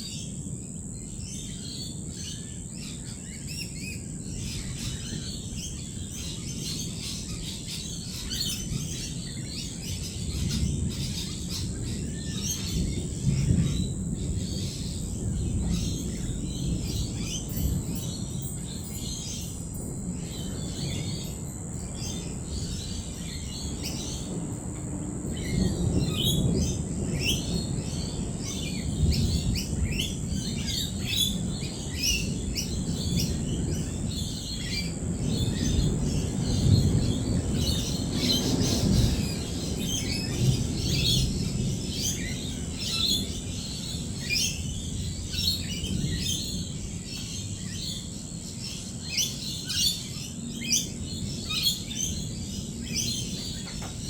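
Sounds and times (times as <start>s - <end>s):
lorikeets chirping and calling: 0.0s - 54.0s
distant thunder rumbling: 9.8s - 19.4s, 21.9s - 47.7s.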